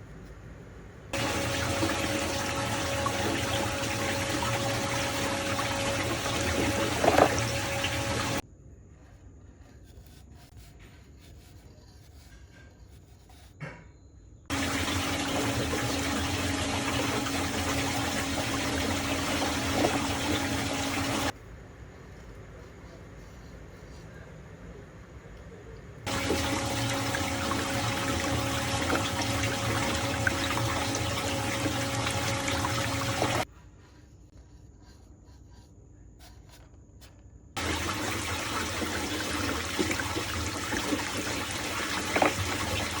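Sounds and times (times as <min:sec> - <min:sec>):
machine hum: 0:01.2 - 0:08.4, 0:14.5 - 0:21.3, 0:26.1 - 0:33.5, 0:37.6 - 0:43.0
water swirling in sink: 0:01.2 - 0:08.4, 0:14.5 - 0:21.4, 0:26.1 - 0:33.5, 0:37.6 - 0:43.0.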